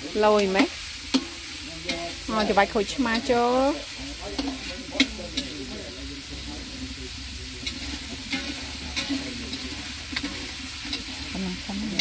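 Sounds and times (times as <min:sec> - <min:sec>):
food sizzling in hot oil: 0:00.0 - 0:12.0
utensil clicking against pan: 0:01.1 - 0:03.4, 0:04.2 - 0:05.7, 0:07.6 - 0:11.4.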